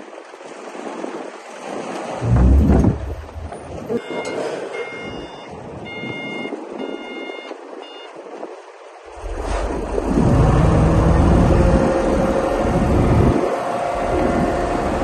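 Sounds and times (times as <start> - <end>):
reversing alarm beeping: 2.2 - 8.1
bulldozer diesel engine: 9.1 - 15.0.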